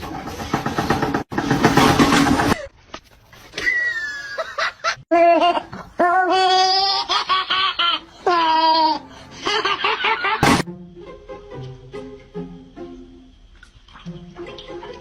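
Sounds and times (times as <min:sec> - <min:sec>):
high-pitched laughing: 0:03.6 - 0:10.4.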